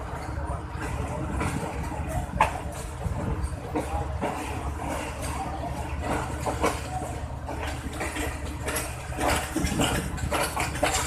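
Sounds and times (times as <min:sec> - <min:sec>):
train coach rumbling: 0:00.0 - 0:11.0
metallic clanks and rattles: 0:03.7 - 0:11.0.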